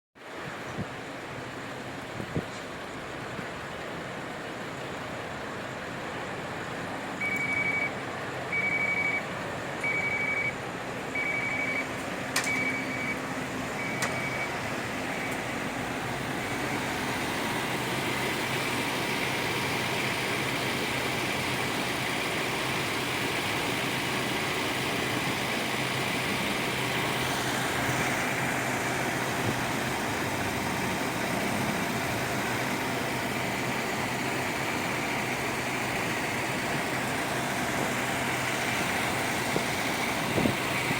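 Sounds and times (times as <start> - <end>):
bus engine running: 0.2 - 40.9
road noise: 0.2 - 40.9
high electronic warning beep: 7.2 - 13.2, 13.8 - 15.4.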